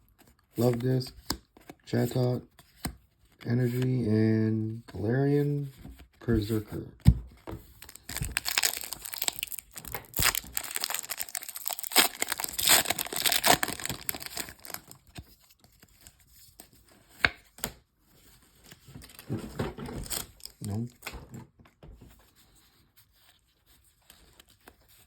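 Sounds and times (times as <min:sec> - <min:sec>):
foil wrapper tearing and crinkling: 0:07.8 - 0:15.1, 0:20.0 - 0:20.9.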